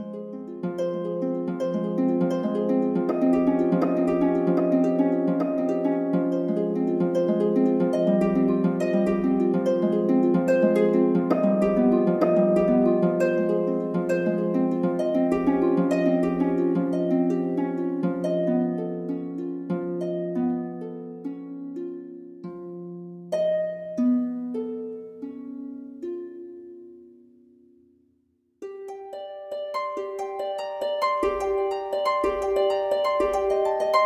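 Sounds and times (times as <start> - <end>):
harp-like plucked strings: 0.0 - 27.8, 28.6 - 34.0.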